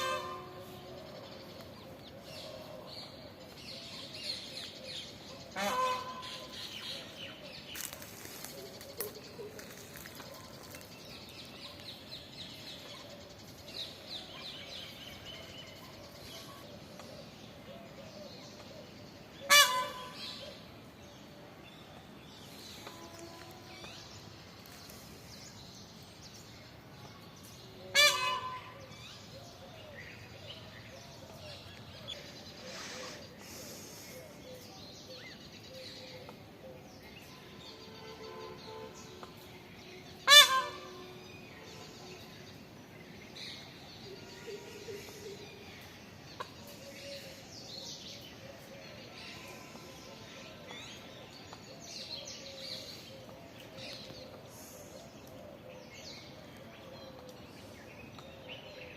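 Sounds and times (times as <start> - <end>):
bird harsh honking calls: 0.0 - 0.8, 5.5 - 6.7, 19.4 - 20.6, 27.9 - 28.8, 40.2 - 41.2.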